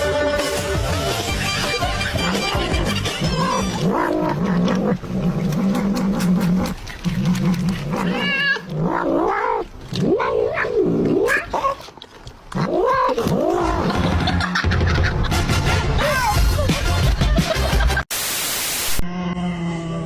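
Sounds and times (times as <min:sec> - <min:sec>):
cat yowling: 0:01.5 - 0:04.5, 0:08.0 - 0:08.7.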